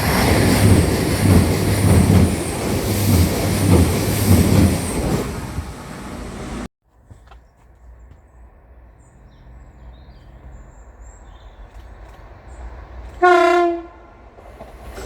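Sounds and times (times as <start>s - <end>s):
train rumbling: 0.0s - 6.7s, 11.6s - 15.0s
train horn blast: 13.2s - 14.3s.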